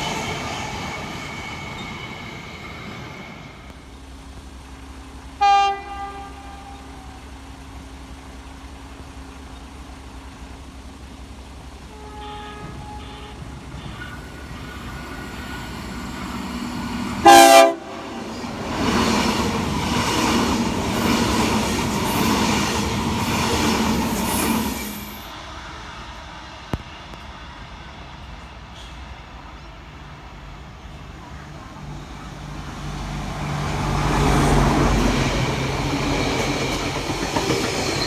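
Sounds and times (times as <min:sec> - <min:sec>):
train rushing past: 0:00.0 - 0:38.0
train horn blasts: 0:05.4 - 0:07.5, 0:11.8 - 0:14.4, 0:17.0 - 0:18.6.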